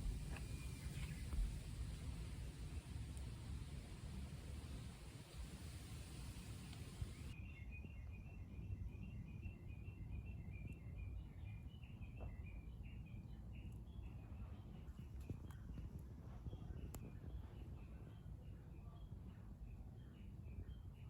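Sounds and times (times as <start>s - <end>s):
small bird chirping: 0.0s - 1.8s
steady hiss: 0.0s - 7.4s.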